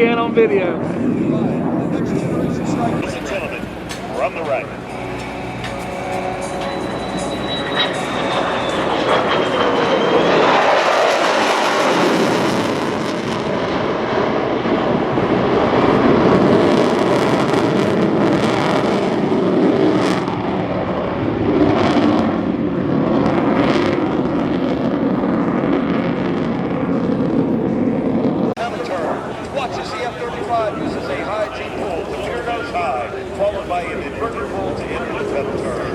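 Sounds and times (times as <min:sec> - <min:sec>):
fighter jet roar: 0:00.0 - 0:35.9.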